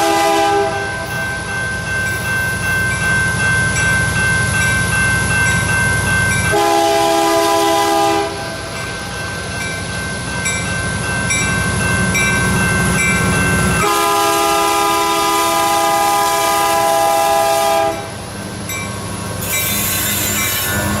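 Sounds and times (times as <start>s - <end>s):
train horn blast: 0.0s - 1.0s, 6.5s - 8.6s, 13.8s - 18.1s
model train rumbling on track: 0.0s - 21.0s.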